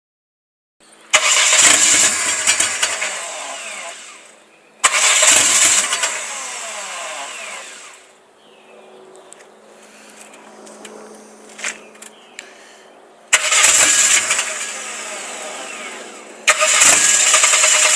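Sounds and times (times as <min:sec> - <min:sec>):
misfiring car engine revving: 0:01.1 - 0:08.1, 0:13.3 - 0:17.9.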